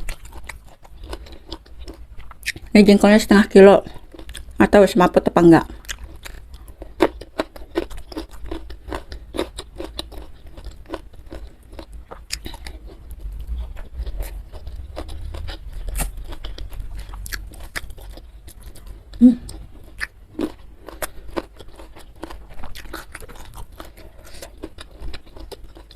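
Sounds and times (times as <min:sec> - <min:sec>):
person chewing crunchy food: 0:00.0 - 0:02.8, 0:03.8 - 0:04.6, 0:05.6 - 0:25.9.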